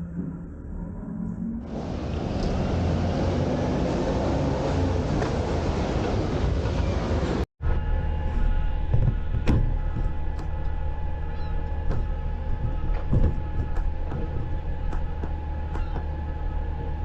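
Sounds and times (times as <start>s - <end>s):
garbage truck engine humming: 1.7s - 17.0s
metallic clanks and knocks: 8.8s - 17.0s.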